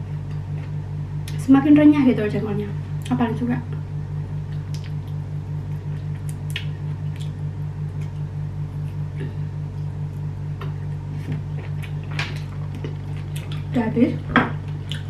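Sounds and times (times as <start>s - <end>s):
pulsing low hum: 0.0s - 15.0s
chewing and mouth smacking: 4.5s - 13.8s, 14.6s - 15.0s.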